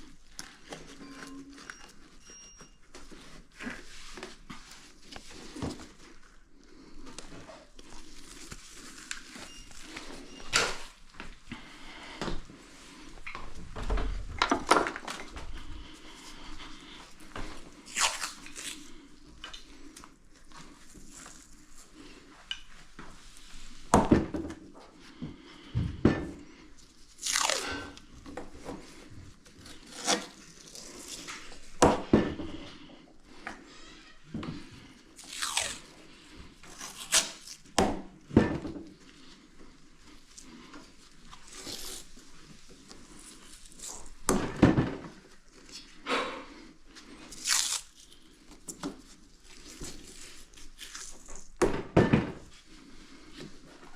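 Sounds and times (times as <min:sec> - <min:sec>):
knocks and clicks of handling parts: 0:13.7 - 0:15.4
crunching and rustling materials: 0:26.8 - 0:31.7, 0:35.1 - 0:37.8, 0:47.0 - 0:51.6.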